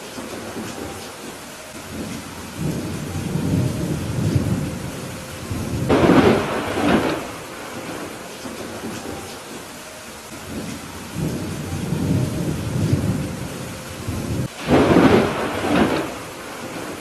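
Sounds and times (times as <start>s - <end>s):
steady rain: 0.0s - 17.0s
low thunder rumbles: 1.8s - 9.2s, 10.4s - 17.0s
loud thunder clap: 5.5s - 8.8s, 14.0s - 17.0s.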